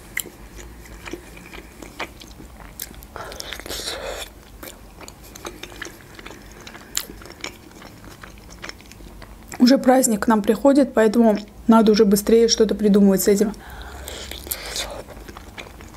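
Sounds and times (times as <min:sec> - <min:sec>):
wet chewing: 0:00.1 - 0:09.7, 0:13.6 - 0:15.9.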